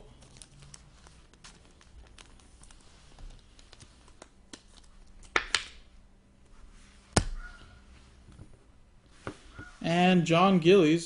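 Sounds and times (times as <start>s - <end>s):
trading cards rustling: 0.0s - 5.4s.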